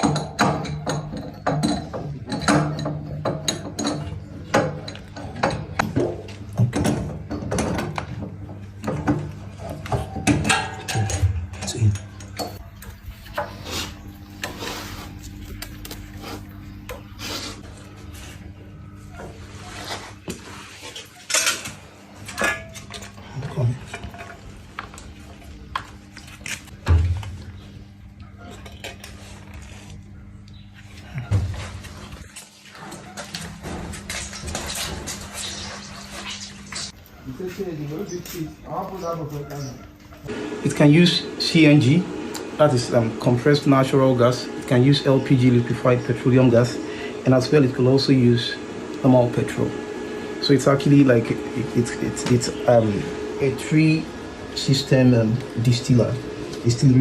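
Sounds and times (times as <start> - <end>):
metal tools clinking and scraping: 0.0 - 8.0, 9.5 - 18.2, 20.8 - 25.2
steady low hum: 0.0 - 57.0.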